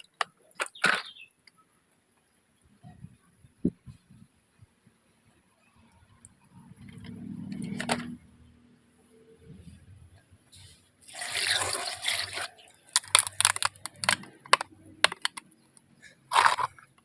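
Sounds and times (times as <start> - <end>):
drips and splats: 11.0 - 14.2
cartoon water spraying: 11.1 - 12.8.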